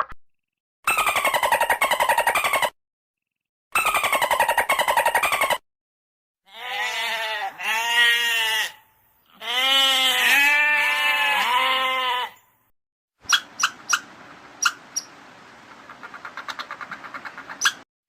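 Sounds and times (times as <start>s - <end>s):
goat bleating: 6.5s - 12.4s.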